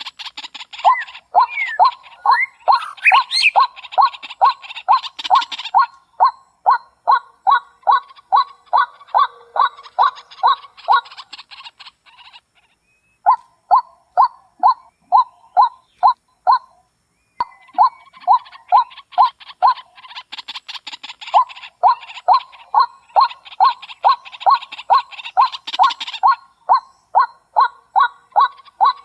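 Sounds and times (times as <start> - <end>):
higher bird chirps: 0.0 - 29.0
bird calling in falling notes: 0.7 - 4.0.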